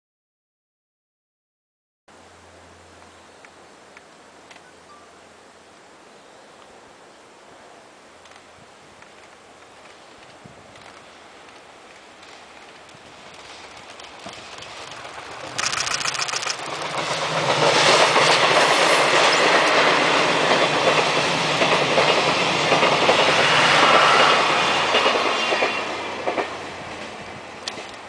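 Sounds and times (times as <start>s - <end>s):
train wheels clattering: 9.8s - 28.0s.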